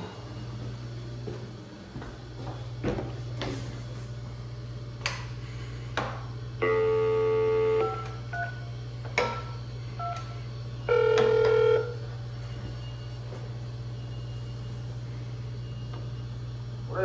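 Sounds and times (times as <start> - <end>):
steady low hum: 0.0 - 17.0
phone call tone: 6.6 - 12.1.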